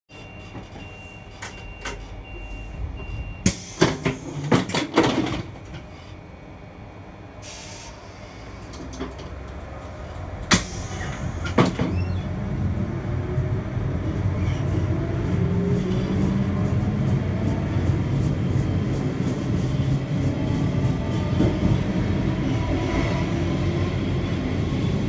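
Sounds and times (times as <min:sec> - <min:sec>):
high warning beep: 0:00.1 - 0:03.8
train knocks and clunks: 0:00.1 - 0:06.0, 0:08.6 - 0:12.3, 0:15.4 - 0:25.0
train rumble: 0:00.1 - 0:25.0
hiss of air: 0:07.4 - 0:08.4.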